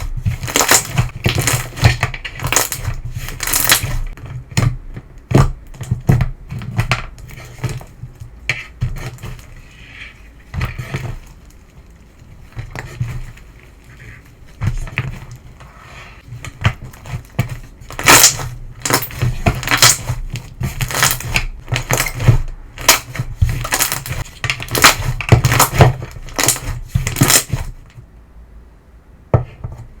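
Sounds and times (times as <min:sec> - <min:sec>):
slime crackling and crunching: 0:00.3 - 0:04.2, 0:17.9 - 0:27.6.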